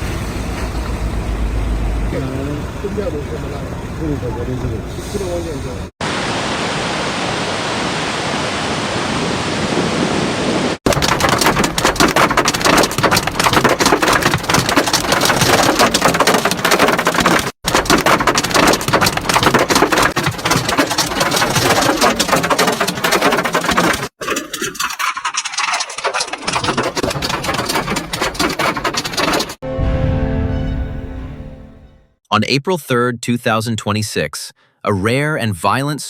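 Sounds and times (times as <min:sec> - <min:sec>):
heavy rain roar: 0:00.0 - 0:24.0
hailstones rattling on hard surfaces: 0:10.9 - 0:29.6.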